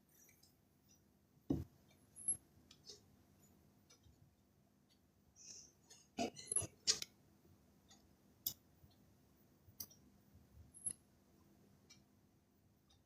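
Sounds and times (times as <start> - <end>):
faint clicks and taps: 0.2 - 5.1.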